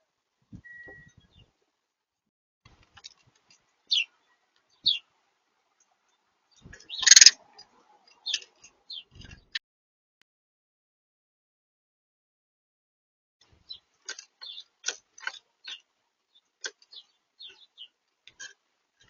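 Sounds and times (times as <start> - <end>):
small birds chirping: 0.6 - 1.6, 3.0 - 5.1, 5.7 - 9.6, 13.4 - 19.0.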